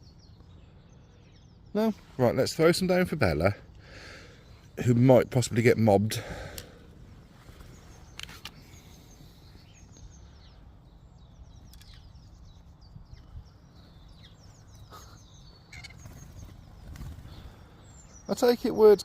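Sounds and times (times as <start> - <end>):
starlings chirping and whistling: 7.4 - 19.0.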